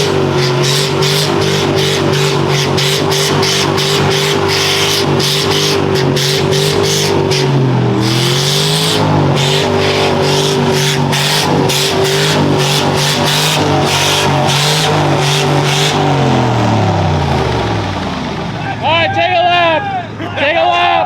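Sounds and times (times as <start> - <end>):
engine revving hard: 0.0 - 18.9.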